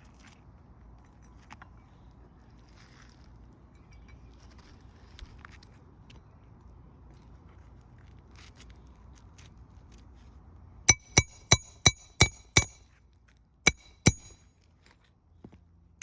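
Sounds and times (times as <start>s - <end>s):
hammer striking nails: 10.9s - 12.8s, 13.7s - 14.4s.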